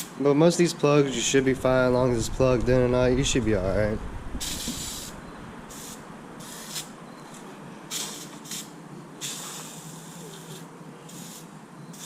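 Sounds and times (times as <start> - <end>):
liquid spray hissing: 4.4 - 6.9, 7.9 - 12.0.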